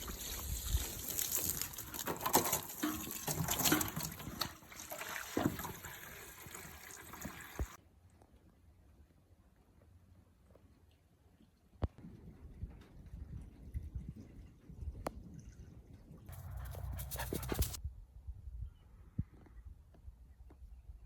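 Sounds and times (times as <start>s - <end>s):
spring water running and splashing: 0.0s - 7.8s.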